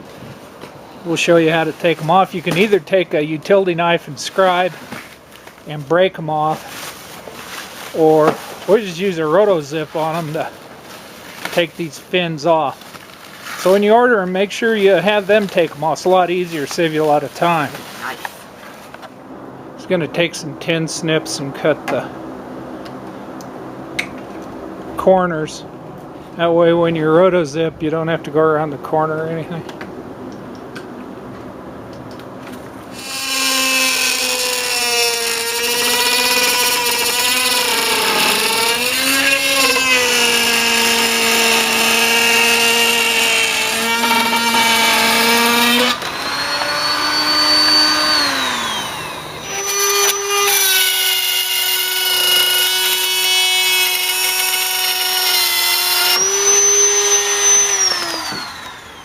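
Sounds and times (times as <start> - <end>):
spiral saw cutting: 32.9 - 59.0.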